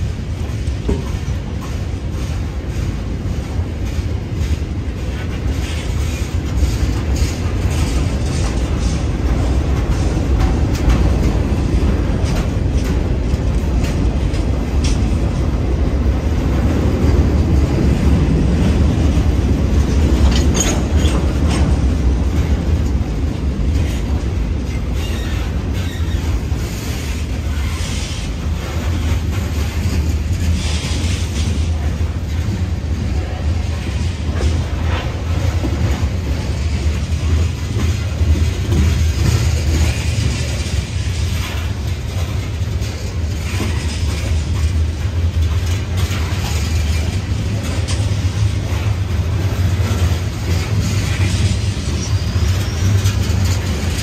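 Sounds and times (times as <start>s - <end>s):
train wheels rumbling on rails: 0.0s - 54.0s
clicks and clanks: 19.8s - 23.0s, 33.7s - 54.0s.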